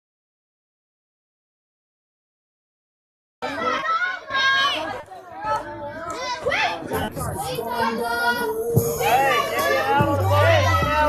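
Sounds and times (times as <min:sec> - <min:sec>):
children shouting: 0:03.4 - 0:11.0.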